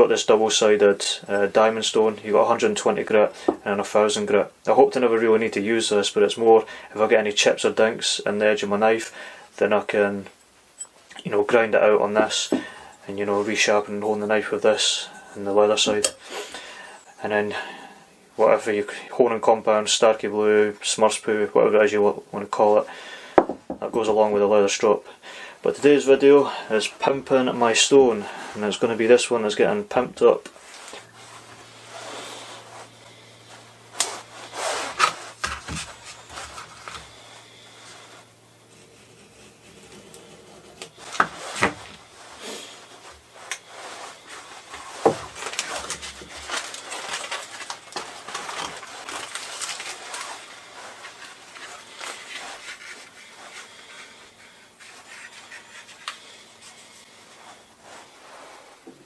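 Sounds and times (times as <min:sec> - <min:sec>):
objects knocking and clicking: 0:23.4 - 0:23.8
rubbing and scraping: 0:30.2 - 0:58.8.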